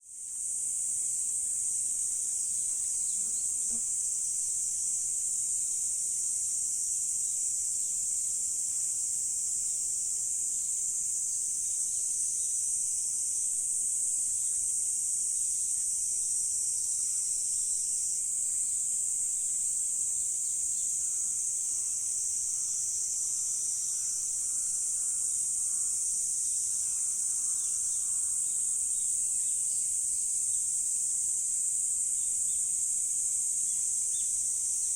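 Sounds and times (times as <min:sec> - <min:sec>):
insects chorus shrilling: 0:20.3 - 0:29.8.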